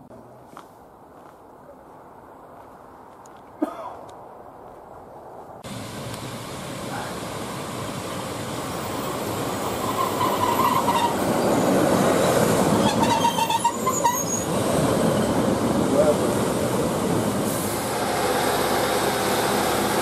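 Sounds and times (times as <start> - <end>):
train running noise: 5.6 - 20.0
train wheel squeals: 8.8 - 15.4.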